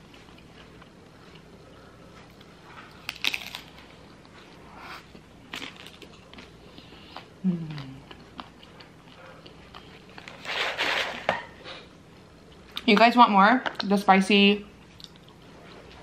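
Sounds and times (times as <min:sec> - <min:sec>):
crunchy chewing: 0:00.0 - 0:11.1
low hum of voice: 0:07.4 - 0:08.2.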